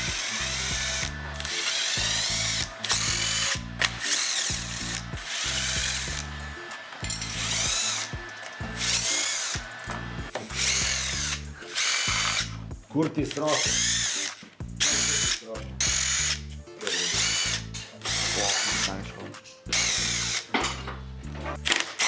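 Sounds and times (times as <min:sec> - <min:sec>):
background music with bass line: 0:00.0 - 0:21.8
power tool whirring: 0:00.0 - 0:22.0.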